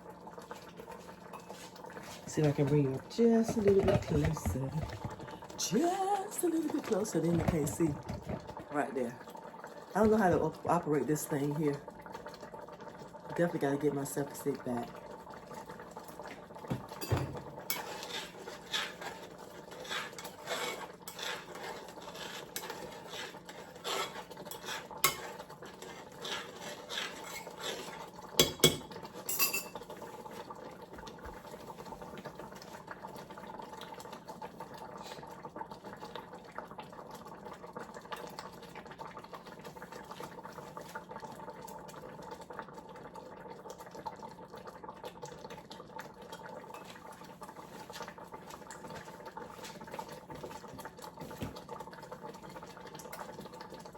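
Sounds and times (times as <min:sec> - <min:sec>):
spoon scraping a pot: 0:03.4 - 0:05.4, 0:17.0 - 0:29.8.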